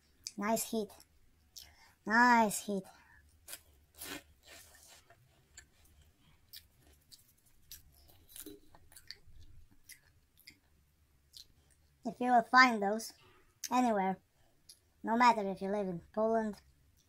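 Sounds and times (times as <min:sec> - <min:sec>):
faint chewing of crunchy snacks: 0:00.0 - 0:02.0, 0:02.9 - 0:12.1, 0:13.2 - 0:15.0.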